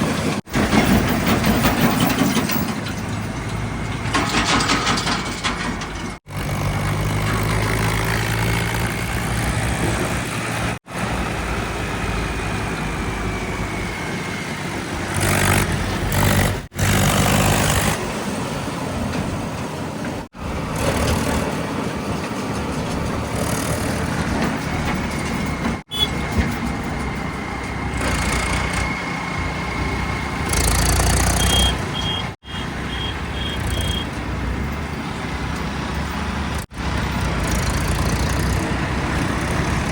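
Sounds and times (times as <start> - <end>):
heavy diesel machinery working: 0.0 - 39.9
short high beeps: 25.9 - 26.2, 31.3 - 34.1.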